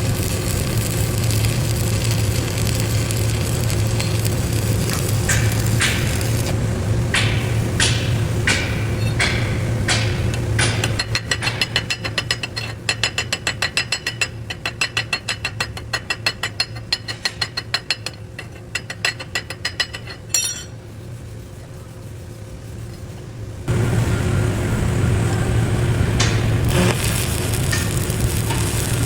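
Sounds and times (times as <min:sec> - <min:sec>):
hammer tapping on metal: 0:07.1 - 0:20.7
ringing metal clink: 0:19.9 - 0:20.8.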